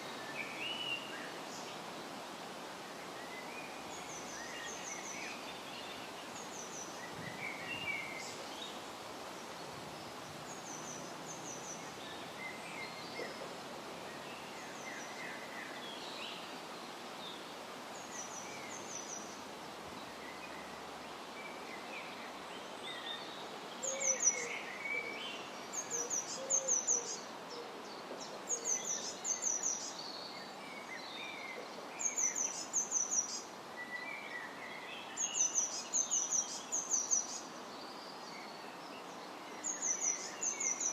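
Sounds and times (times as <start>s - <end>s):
wind noise: 7.0s - 8.1s
birds calling and singing: 22.9s - 40.9s.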